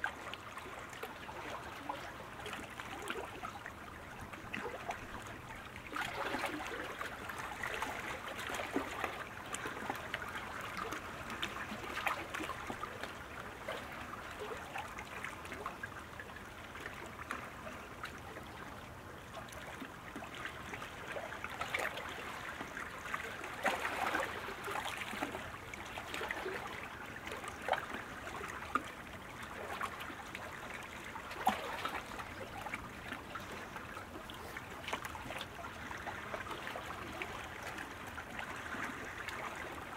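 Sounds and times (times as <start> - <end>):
paddle water splashing: 0.0 - 39.9.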